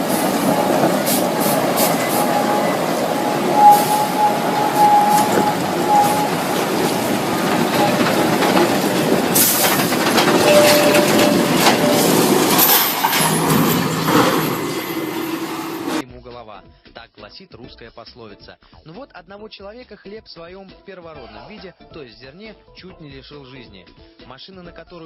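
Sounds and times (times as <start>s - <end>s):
heavy machinery rumbling: 0.0s - 16.0s
thin metallic squeal: 0.0s - 16.0s
metal clanks: 3.6s - 16.0s.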